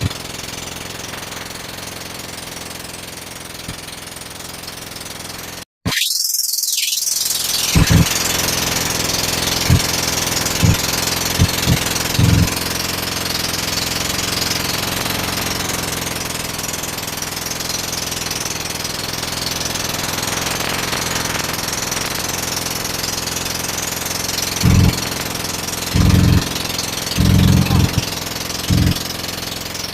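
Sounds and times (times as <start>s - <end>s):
motor boat engine running: 0.0s - 5.6s, 7.6s - 29.9s
short low thumps: 7.8s - 8.1s, 10.6s - 12.6s, 24.6s - 25.1s, 26.0s - 28.1s, 28.7s - 29.0s.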